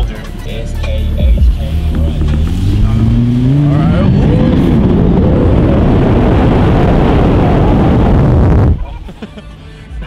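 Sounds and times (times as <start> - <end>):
car engine accelerating: 0.4 - 8.8
wind noise on microphone: 1.9 - 8.8.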